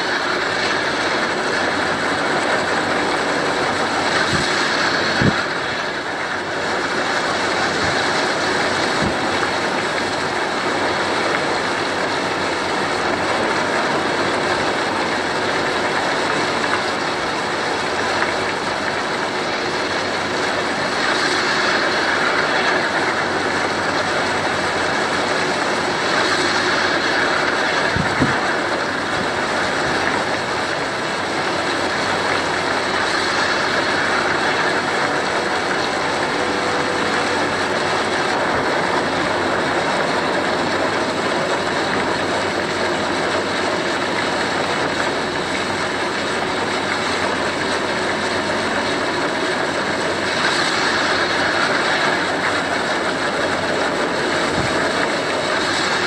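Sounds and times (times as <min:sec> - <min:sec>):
wind and rain storm: 0:00.0 - 0:56.0.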